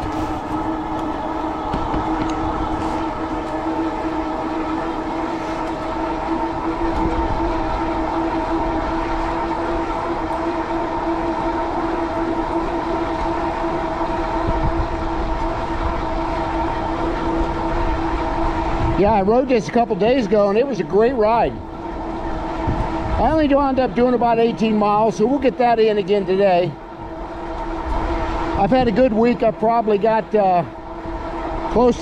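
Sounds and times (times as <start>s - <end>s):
wind on microphone: 0.0s - 11.7s, 12.4s - 20.5s, 21.2s - 25.0s
e-bike motor droning hum: 0.0s - 32.0s.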